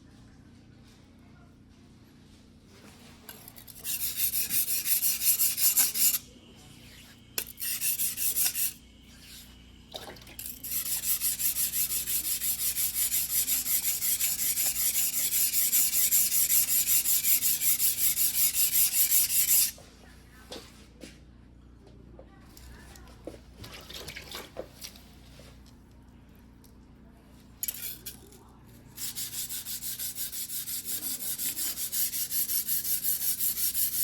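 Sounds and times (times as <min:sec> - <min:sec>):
blade scraping on whetstone: 0:03.4 - 0:09.5, 0:10.4 - 0:19.8, 0:29.0 - 0:34.0.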